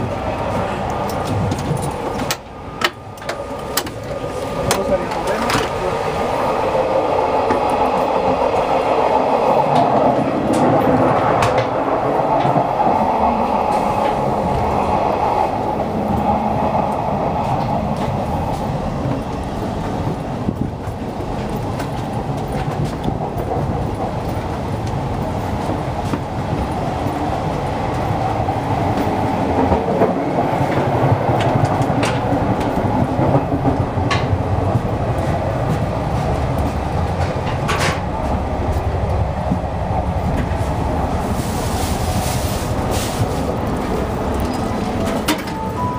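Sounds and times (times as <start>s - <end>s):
train carriage running on rails: 0.0s - 45.9s.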